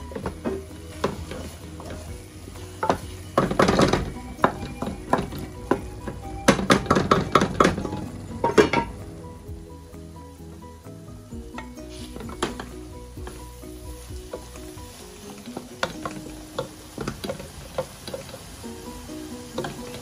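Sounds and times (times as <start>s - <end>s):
wooden spoon scraping a pot: 0.0s - 9.0s, 11.6s - 18.4s
meat sizzling: 0.0s - 20.0s.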